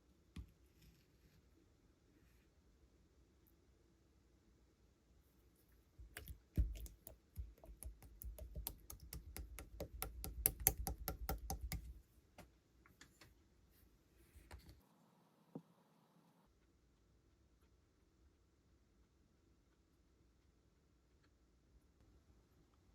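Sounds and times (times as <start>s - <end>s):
slime clicking and popping: 6.2s - 11.9s.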